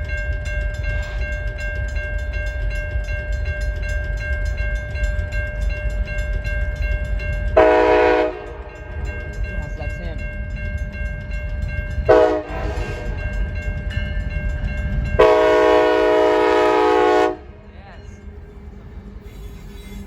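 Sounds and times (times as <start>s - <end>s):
steady ringing tones: 0.0s - 19.2s
train rumbling past: 0.0s - 20.0s
train horn blast: 7.6s - 8.9s, 12.1s - 13.1s, 15.2s - 17.7s.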